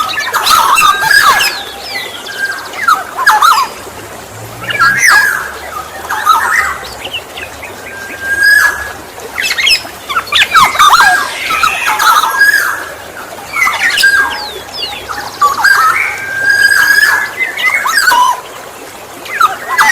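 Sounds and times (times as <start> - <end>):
bird calling with squawks and whistles: 4.6 - 7.0, 7.9 - 18.4.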